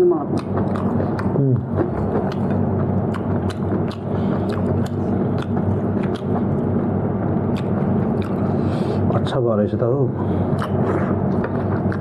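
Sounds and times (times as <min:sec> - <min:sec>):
low hum: 0:00.0 - 0:12.0
person chewing with mouth clicks: 0:00.3 - 0:06.7, 0:07.5 - 0:09.1, 0:10.5 - 0:12.0.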